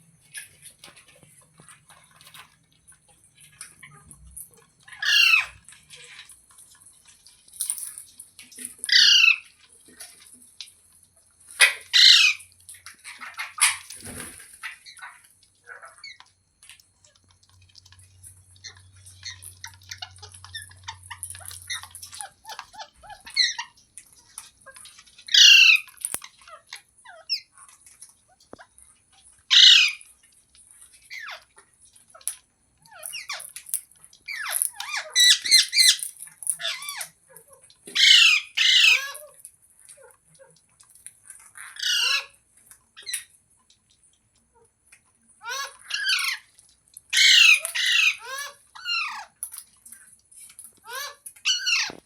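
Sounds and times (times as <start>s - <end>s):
parrot chattering and chirping: 3.6s - 6.3s, 8.5s - 9.6s, 11.6s - 16.4s, 17.9s - 30.2s, 30.9s - 33.6s, 34.2s - 39.4s, 41.5s - 42.4s, 43.0s - 43.4s, 45.4s - 49.4s, 50.8s - 52.0s
parrot squawking harshly: 5.0s - 5.6s, 8.9s - 9.4s, 11.6s - 12.4s, 25.3s - 25.9s, 29.5s - 30.0s, 38.0s - 39.3s, 41.7s - 42.4s, 45.4s - 46.5s, 47.1s - 49.3s, 50.9s - 52.0s.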